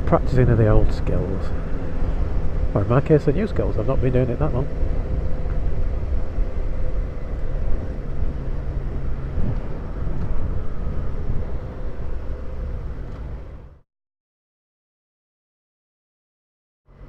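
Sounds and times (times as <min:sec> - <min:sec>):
motorcycle engine cruising: 0:00.0 - 0:13.8
road and wind noise: 0:00.0 - 0:13.8.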